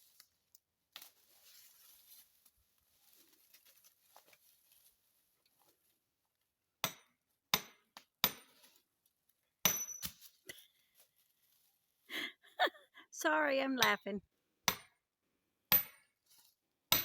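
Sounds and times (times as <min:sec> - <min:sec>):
faint rustling: 0:01.1 - 0:05.9
hammer striking wedge with ringing: 0:09.6 - 0:10.1.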